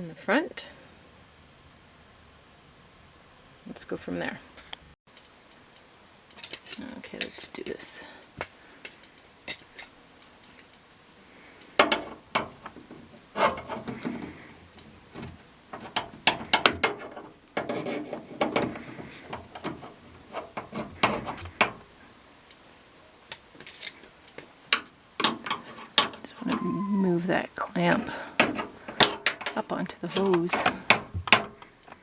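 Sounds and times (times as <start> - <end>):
hand tools clicking and knocking: 11.8 - 21.8, 23.3 - 26.7, 28.2 - 32.0.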